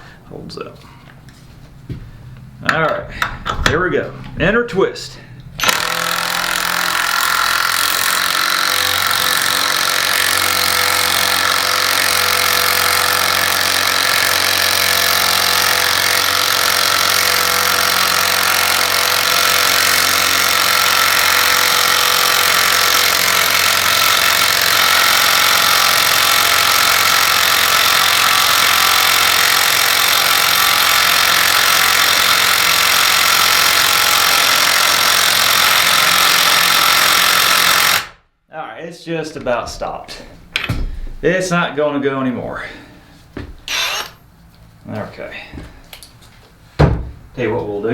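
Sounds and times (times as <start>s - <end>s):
impact driver hammering: 5.6s - 38.1s, 40.6s - 41.2s, 43.7s - 44.2s.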